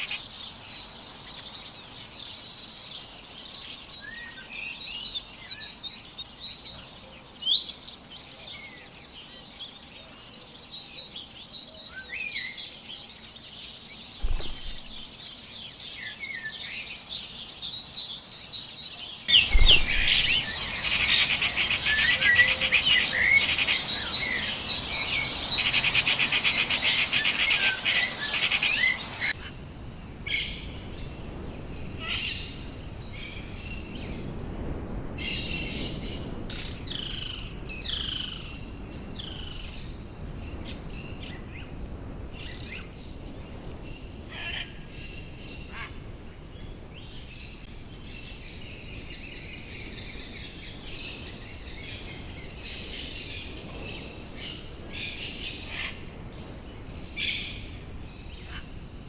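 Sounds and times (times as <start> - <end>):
wild birds chirping: 0.0 - 59.0
bird trill: 19.3 - 29.4.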